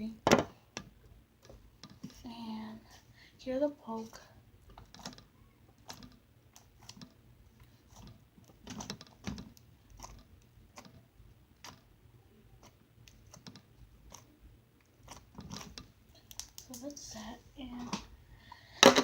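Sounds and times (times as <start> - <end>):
slime being squished: 4.8 - 11.9.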